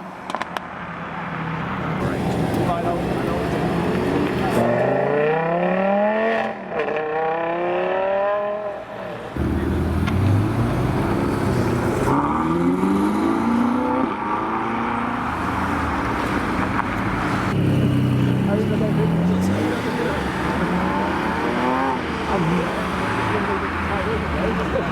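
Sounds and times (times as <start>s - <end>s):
supercar engines accelerating: 9.3s - 24.9s
deep engine rumble: 9.4s - 12.1s.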